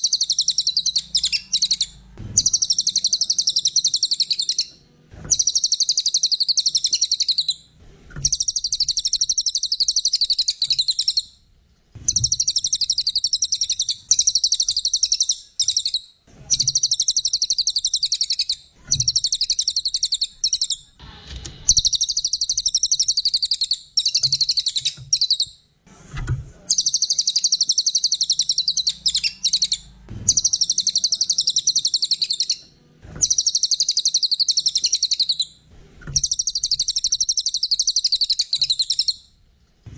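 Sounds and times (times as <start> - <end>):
songbird high-pitched trills: 0.0 - 4.7, 26.7 - 32.6, 33.2 - 35.5, 36.2 - 39.2.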